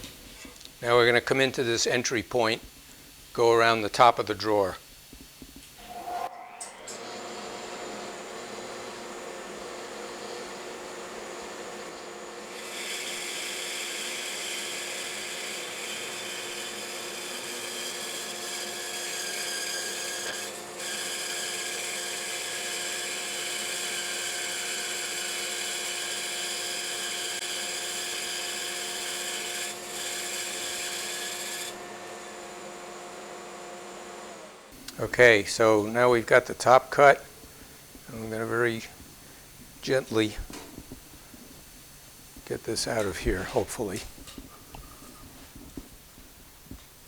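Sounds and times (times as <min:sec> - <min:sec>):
bandsaw cutting wood: 0:06.6 - 0:37.3.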